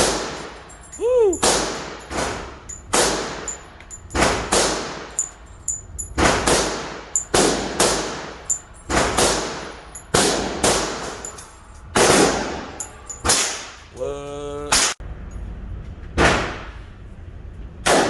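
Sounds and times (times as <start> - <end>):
gunshots with echo: 0.0 - 0.6, 1.4 - 3.5, 6.2 - 11.2, 11.9 - 13.8
light metallic pings: 5.1 - 6.1.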